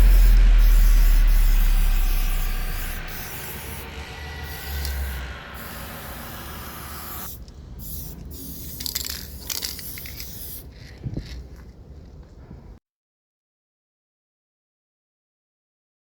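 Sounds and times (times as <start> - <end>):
spray can hissing: 0.0 - 11.4.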